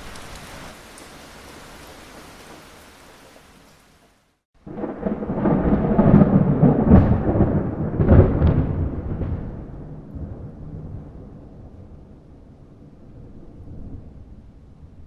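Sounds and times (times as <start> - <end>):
rain hiss: 0.0 - 4.4
thunder rumbling: 4.6 - 15.0.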